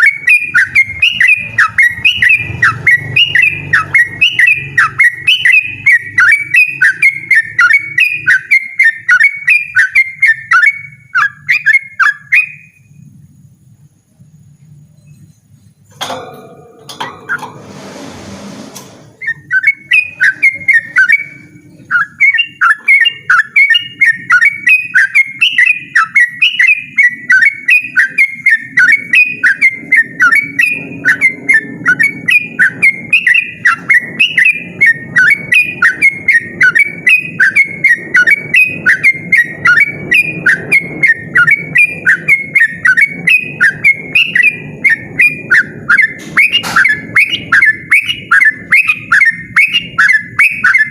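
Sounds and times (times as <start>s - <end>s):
bird singing rapid whistled notes: 0.0s - 13.1s, 19.2s - 50.9s
rustling noise: 17.2s - 19.2s.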